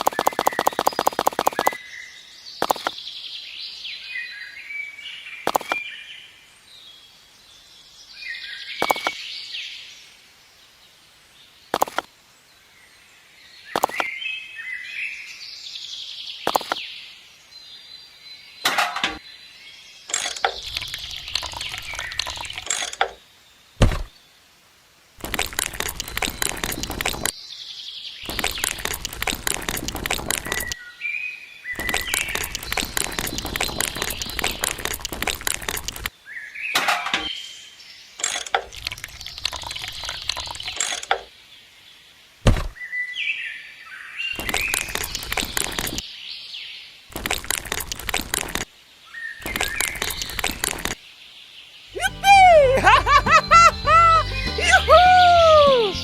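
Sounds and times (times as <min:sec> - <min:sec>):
fast even clicking: 0:00.0 - 0:01.8, 0:28.3 - 0:30.8, 0:31.8 - 0:36.1
birds chirping: 0:00.0 - 0:09.9, 0:16.0 - 0:24.4, 0:25.2 - 0:56.0.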